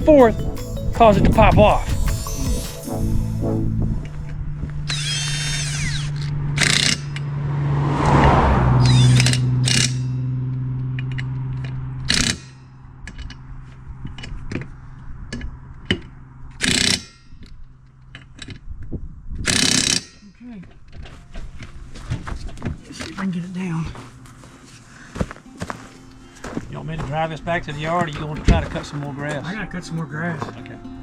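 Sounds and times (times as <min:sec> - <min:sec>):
motor running with squeaks: 0:04.3 - 0:07.2
mechanical ratcheting: 0:04.9 - 0:07.2, 0:08.9 - 0:10.1, 0:12.0 - 0:13.4, 0:16.6 - 0:17.2, 0:19.4 - 0:20.2.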